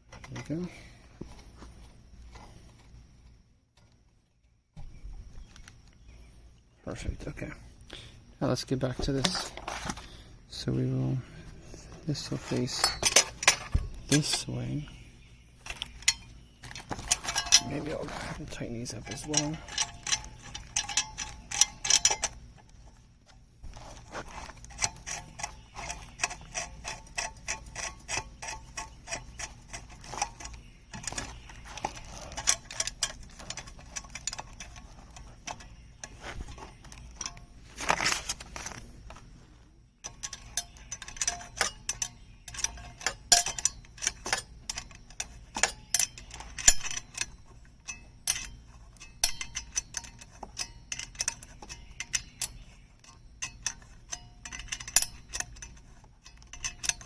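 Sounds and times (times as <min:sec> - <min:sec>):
metal scrape: 0:15.6 - 0:22.4
ratchet wrench clicking: 0:24.7 - 0:36.2, 0:40.1 - 0:57.0.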